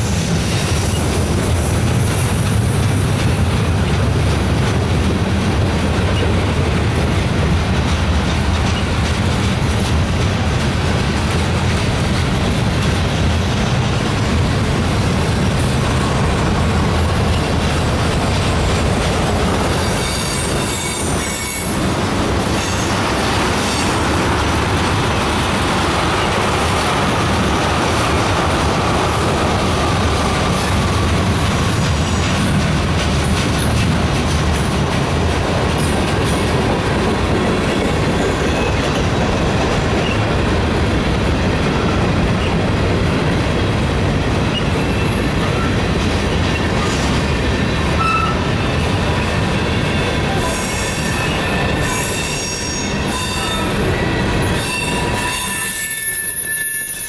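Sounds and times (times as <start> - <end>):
steel wheels rumbling on rail: 0.0 - 57.0
high wheel squeal: 19.7 - 21.9, 48.0 - 57.0.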